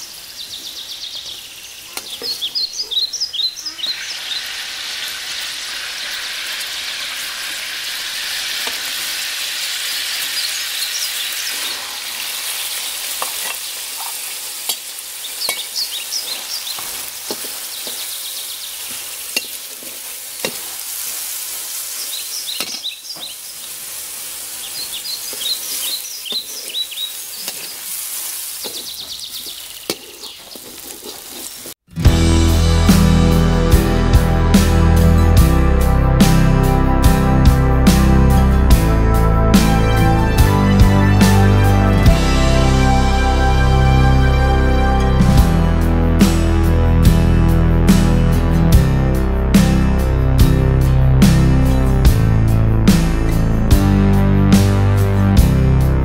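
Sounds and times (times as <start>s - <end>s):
bird chirps: 0.0s - 4.6s, 10.2s - 11.9s, 15.2s - 16.9s, 17.6s - 19.0s, 22.0s - 23.7s, 24.6s - 27.8s, 28.6s - 30.7s
onions sizzling in oil: 2.5s - 31.8s
metal spatula scraping wok: 25.3s - 31.8s.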